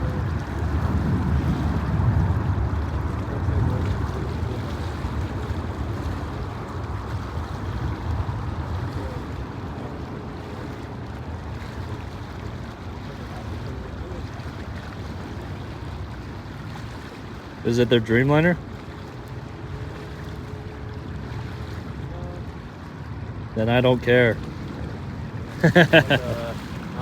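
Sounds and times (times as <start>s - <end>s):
jet engines rumbling: 23.0s - 27.0s.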